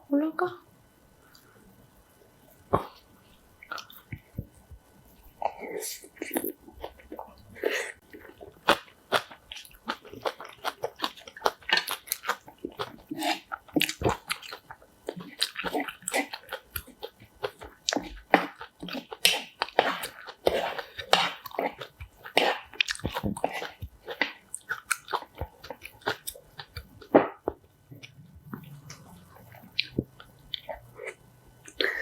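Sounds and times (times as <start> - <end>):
person chewing crunchy food: 2.6 - 4.5, 5.2 - 32.0.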